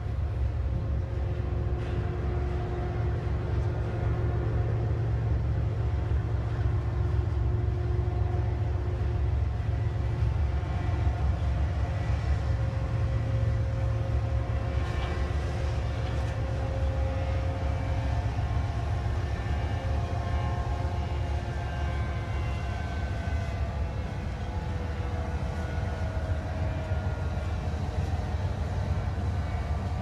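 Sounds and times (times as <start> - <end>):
freight train rumbling over bridge: 0.0 - 30.0
faint steady tones: 0.1 - 30.0.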